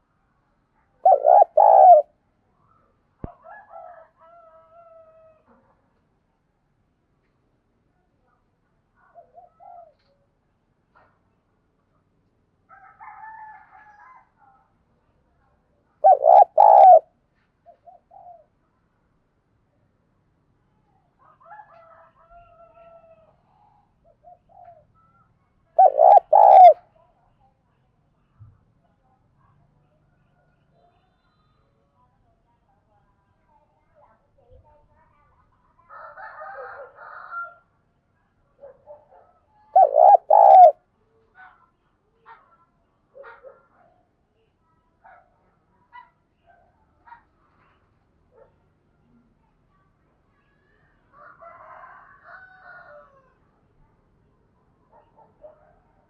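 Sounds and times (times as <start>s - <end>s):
dove cooing: 1.0s - 2.1s, 16.0s - 17.1s, 25.8s - 26.8s, 39.7s - 40.8s.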